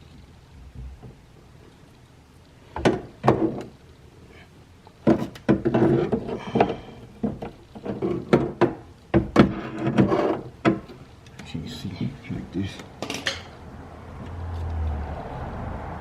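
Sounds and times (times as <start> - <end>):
metal clanks and knocks: 5.0 - 11.0, 13.0 - 13.5.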